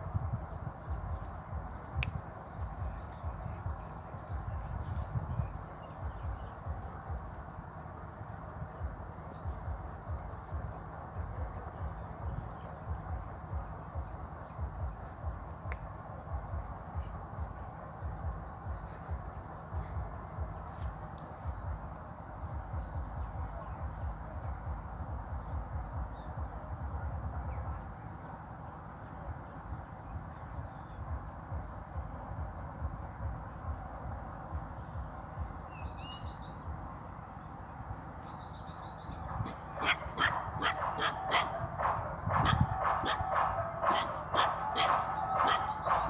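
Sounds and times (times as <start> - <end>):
ambient outdoor noise: 0.0 - 46.0
dog barking rapidly: 39.1 - 46.0.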